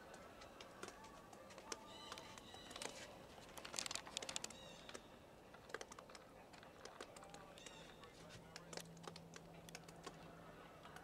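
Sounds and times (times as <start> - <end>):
small birds chirping: 0.0 - 3.2, 4.0 - 5.3, 7.0 - 11.0.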